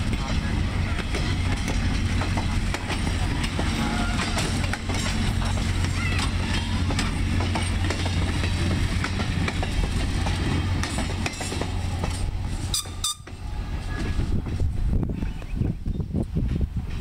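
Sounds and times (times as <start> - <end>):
wheels clicking over rail joints: 0.0 - 15.4
train cars rumbling past: 0.0 - 17.0
wind on microphone: 12.2 - 17.0.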